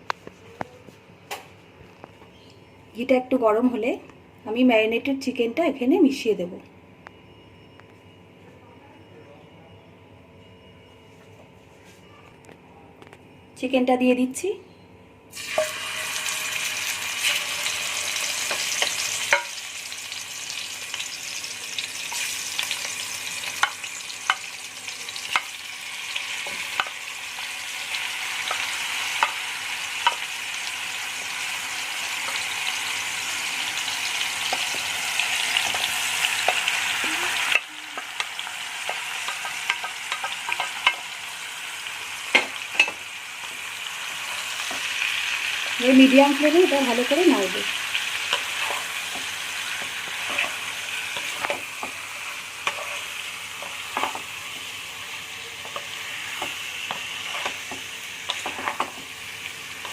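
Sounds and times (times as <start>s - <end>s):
chicken sizzling in hot oil: 15.3s - 59.9s
spatula scraping a pan: 48.3s - 54.2s, 55.7s - 57.7s.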